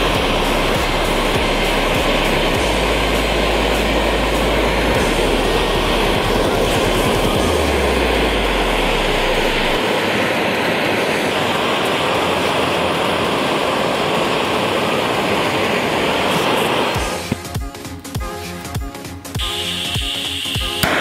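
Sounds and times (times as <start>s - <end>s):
low hum: 0.0s - 17.5s
gas torch flame hissing: 0.0s - 18.0s, 19.4s - 21.0s.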